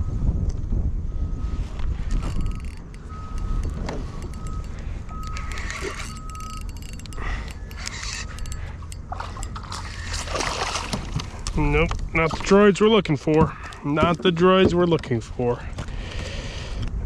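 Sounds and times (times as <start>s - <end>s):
wind buffeting microphone: 0.0s - 17.0s
high tone: 1.1s - 10.3s
sharp clicks: 2.1s - 10.1s.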